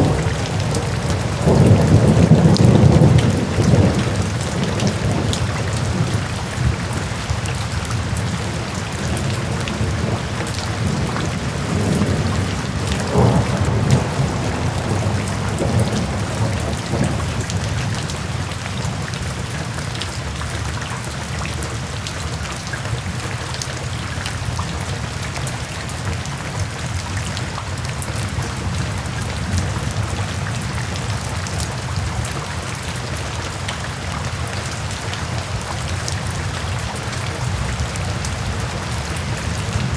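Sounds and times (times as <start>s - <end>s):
low rumble of thunder: 0.0s - 19.8s, 35.3s - 39.9s
rain pattering: 0.0s - 39.9s.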